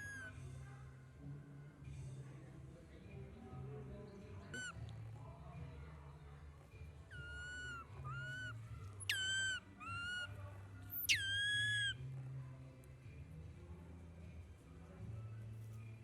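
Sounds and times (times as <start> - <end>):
baby monkey crying: 7.2 - 10.3, 10.9 - 12.0.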